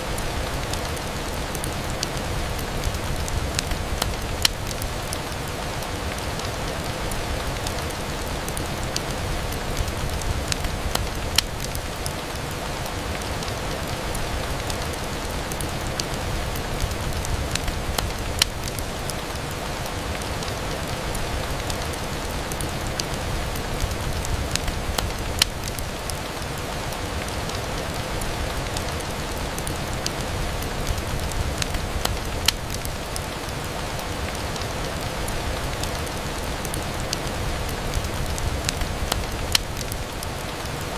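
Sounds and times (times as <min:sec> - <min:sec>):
fireplace crackling: 0:00.0 - 0:40.9
rain on a window: 0:00.0 - 0:40.9.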